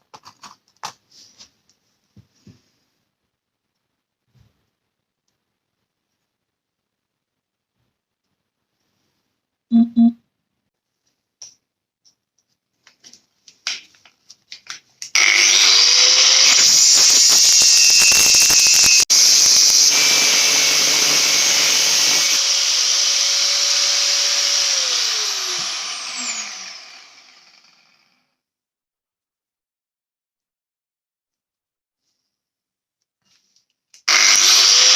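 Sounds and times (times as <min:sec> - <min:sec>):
electric power tool running: 0:15.1 - 0:28.2, 0:34.1 - 0:34.9.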